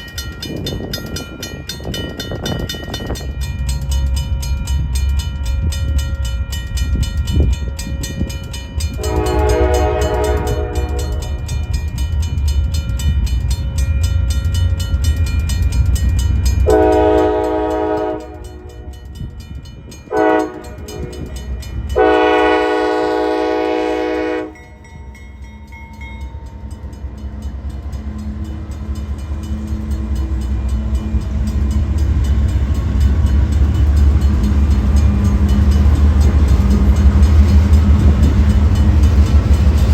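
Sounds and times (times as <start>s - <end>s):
passing train rumble: 0.0s - 39.9s
locomotive air horn blasts: 9.0s - 11.4s, 16.6s - 18.9s, 20.1s - 24.6s.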